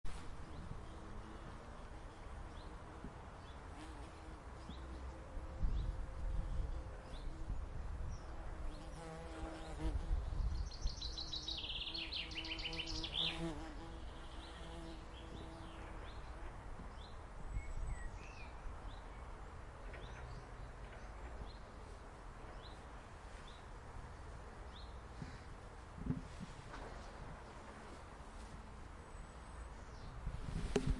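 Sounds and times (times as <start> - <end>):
chaffinch singing: 10.4 - 15.6.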